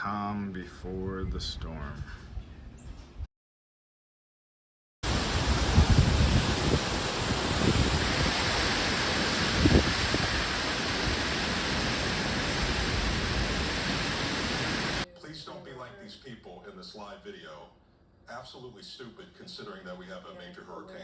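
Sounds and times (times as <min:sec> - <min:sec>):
storm wind rushing: 0:05.0 - 0:15.0
wind gusts buffeting microphone: 0:05.0 - 0:15.0.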